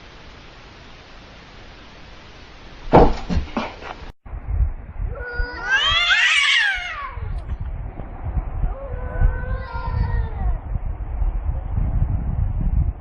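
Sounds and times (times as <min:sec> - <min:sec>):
short knocks: 0:02.9 - 0:03.8
cat yowling: 0:05.1 - 0:07.4, 0:08.7 - 0:10.6.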